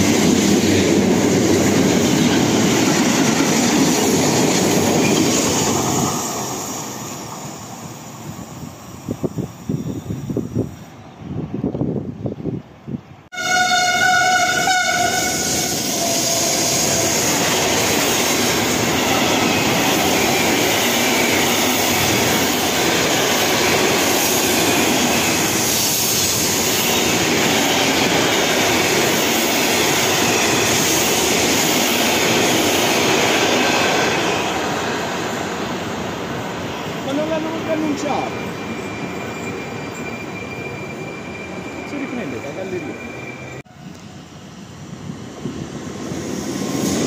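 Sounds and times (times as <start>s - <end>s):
train horn blast: 13.3s - 16.7s.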